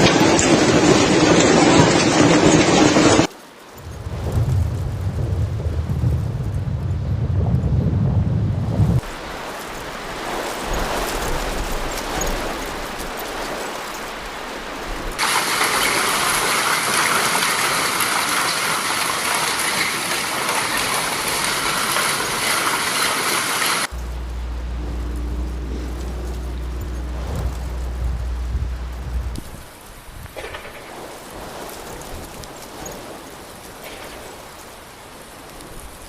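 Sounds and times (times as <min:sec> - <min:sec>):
wind rumble on microphone: 0:03.8 - 0:15.2, 0:23.9 - 0:36.0
heavy rain hissing: 0:09.0 - 0:36.0.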